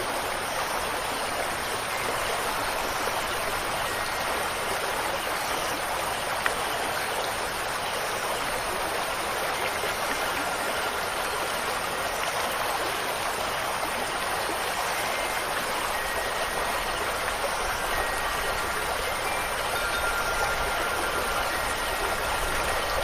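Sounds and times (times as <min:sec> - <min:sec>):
faint wind chimes: 0:00.0 - 0:23.0
water rushing: 0:00.0 - 0:23.0.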